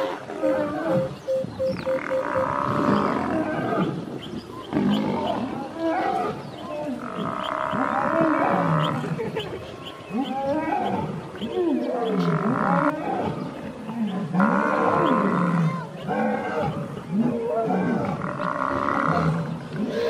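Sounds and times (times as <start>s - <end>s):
buffalo bellowing in distress: 0.0s - 1.3s.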